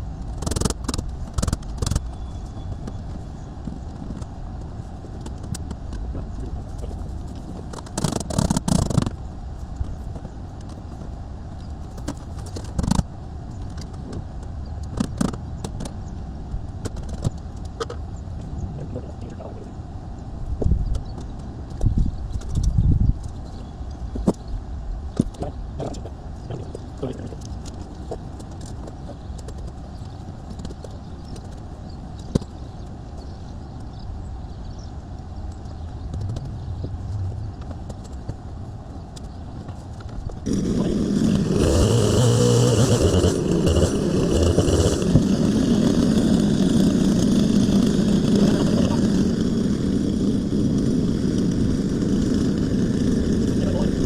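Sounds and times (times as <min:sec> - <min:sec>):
engine running loudly: 0:36.0 - 0:38.8, 0:40.4 - 0:54.0.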